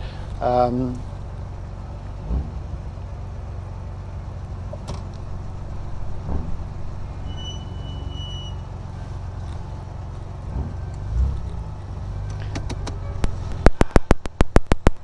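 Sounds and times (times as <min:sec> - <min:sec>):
car engine running: 0:00.0 - 0:15.0
dull knocks: 0:01.0 - 0:03.0, 0:04.6 - 0:11.7.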